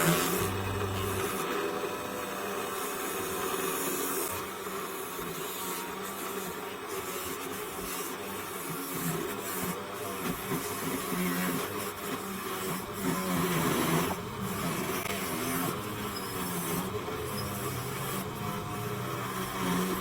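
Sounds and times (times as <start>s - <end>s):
noisy rubbing: 0.0s - 1.6s, 12.6s - 20.0s
small motor humming: 0.0s - 20.0s.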